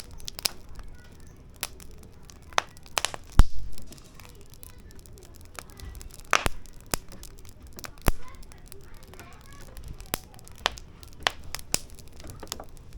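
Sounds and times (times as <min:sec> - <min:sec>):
firewood crackling and popping: 0:00.0 - 0:12.9.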